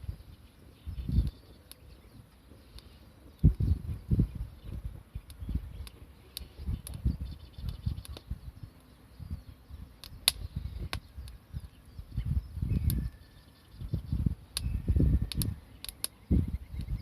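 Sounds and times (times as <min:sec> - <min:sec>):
campfire crackling: 0:00.0 - 0:12.2, 0:14.3 - 0:16.9
sharp pops: 0:10.0 - 0:11.4.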